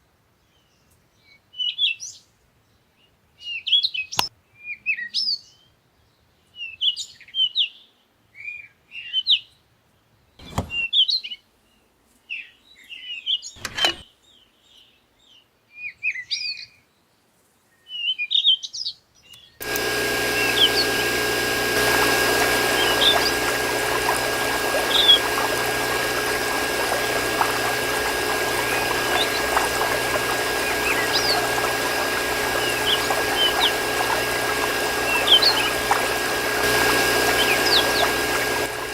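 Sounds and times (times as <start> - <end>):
small birds chirping: 19.2 - 38.9
pump motor hum: 19.6 - 38.9
sharp clicks: 19.6 - 38.9
water pouring: 19.6 - 38.9.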